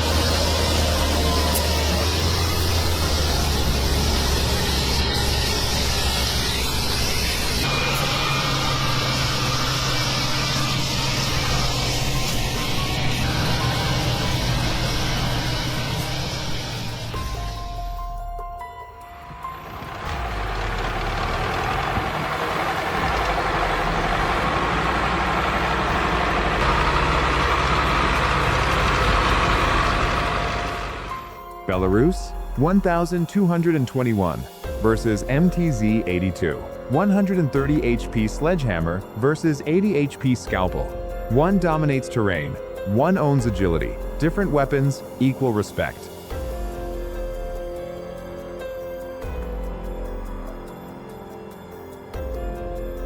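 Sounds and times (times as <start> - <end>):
tractor engine running: 0.0 - 45.5
wheel and track noise: 19.2 - 31.2.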